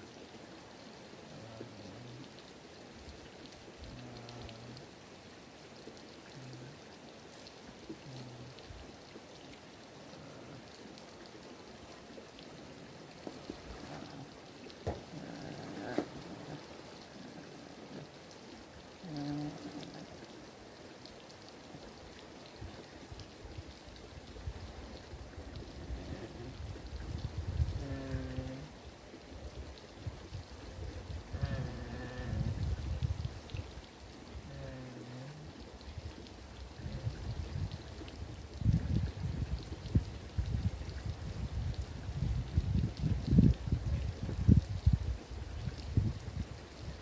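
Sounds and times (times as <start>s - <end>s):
soft hiss: 0.0s - 47.0s
goat grunting: 13.5s - 17.6s, 31.3s - 32.6s.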